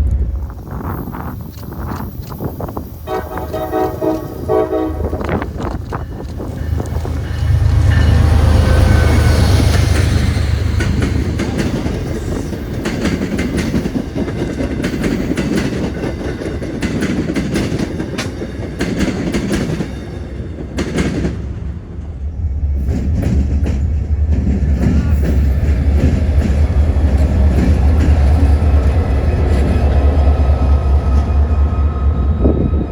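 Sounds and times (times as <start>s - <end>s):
train rumble: 0.0s - 32.9s
train wheels clicking over rail joints: 0.0s - 32.9s.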